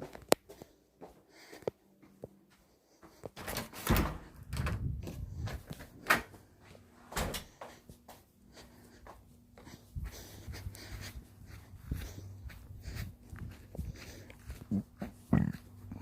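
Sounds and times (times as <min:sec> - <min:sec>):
faint steady hum: 0:04.2 - 0:16.0.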